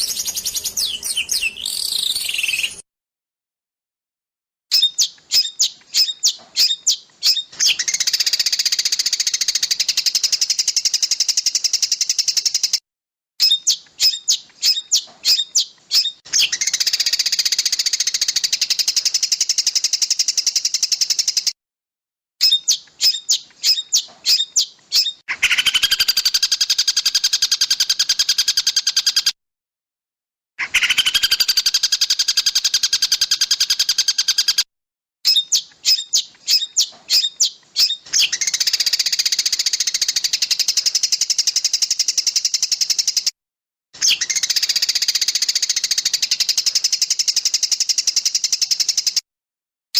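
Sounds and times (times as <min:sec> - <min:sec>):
fast bird trilling: 0:00.0 - 0:02.8, 0:22.4 - 0:29.3, 0:30.6 - 0:34.6
low buzzy bird trill: 0:00.0 - 0:02.8
songbirds chipping: 0:00.0 - 0:02.8, 0:04.7 - 0:12.8, 0:13.4 - 0:21.6, 0:22.4 - 0:29.4, 0:30.6 - 0:34.7, 0:35.3 - 0:43.3, 0:44.0 - 0:49.2.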